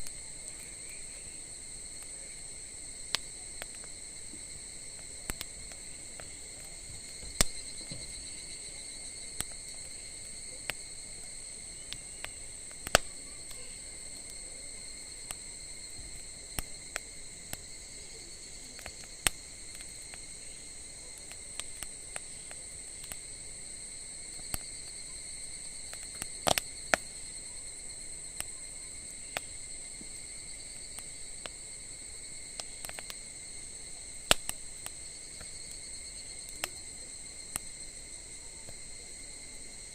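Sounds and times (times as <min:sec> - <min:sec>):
high-pitched insect trill: 0:00.0 - 0:39.9
wood fire crackling: 0:00.0 - 0:39.9.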